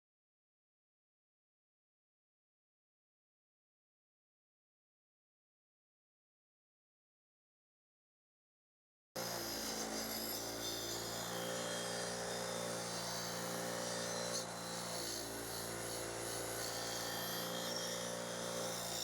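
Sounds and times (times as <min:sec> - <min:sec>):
bench grinder wire wheel running: 0:09.2 - 0:19.0.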